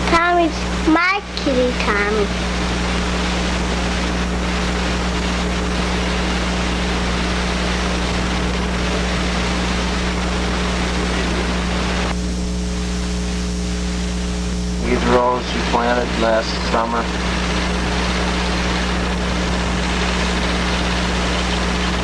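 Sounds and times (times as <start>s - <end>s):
steady rushing noise: 0.0s - 12.3s, 13.4s - 22.0s
low hum: 0.0s - 22.0s.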